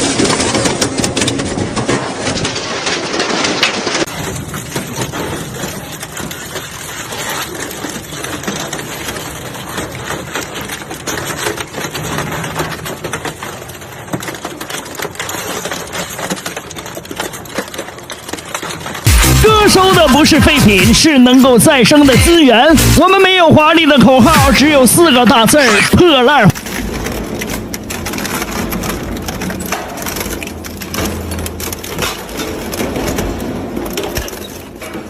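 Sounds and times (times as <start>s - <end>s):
metal shredder crunching scrap: 16.0s - 35.0s.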